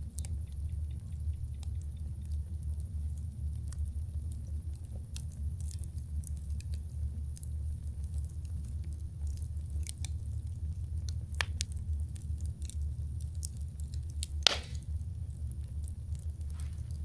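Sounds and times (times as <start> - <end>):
low fire rumble: 0.0 - 17.0
small fire crackles: 0.0 - 17.0
loud fire pop: 14.4 - 15.0.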